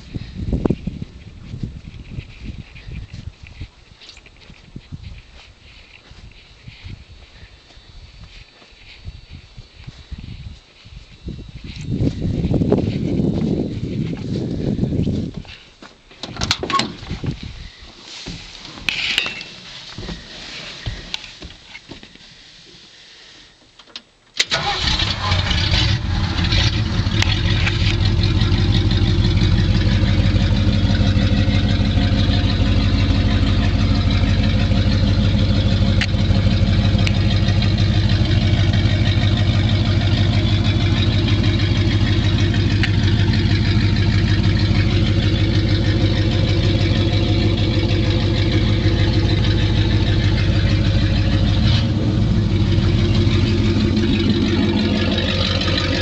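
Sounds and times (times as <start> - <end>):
engine idling: 24.4 - 56.0.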